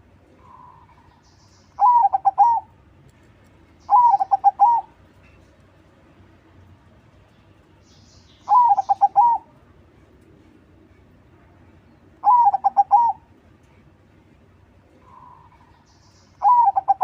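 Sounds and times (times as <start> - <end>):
dove cooing: 1.8 - 2.7, 3.9 - 5.0, 8.5 - 9.5, 12.2 - 13.3, 16.4 - 17.0.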